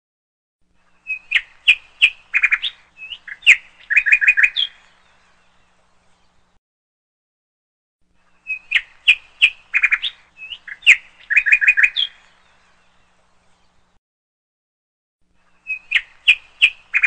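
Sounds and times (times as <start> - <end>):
songbird chirping and trilling: 0.8 - 6.6, 8.2 - 14.0, 15.4 - 17.0.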